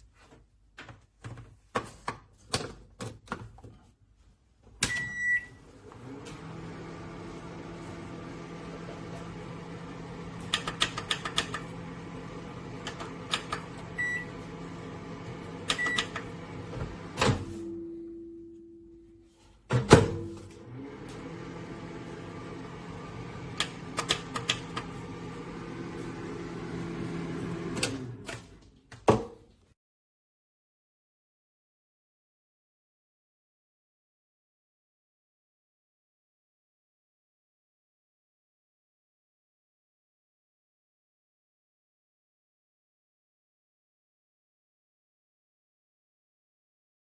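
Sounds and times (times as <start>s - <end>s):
microwave humming: 5.0s - 28.7s
clicks: 10.3s - 12.0s, 12.7s - 14.3s, 15.3s - 17.4s, 23.1s - 26.0s
loud clunk: 19.7s - 20.6s.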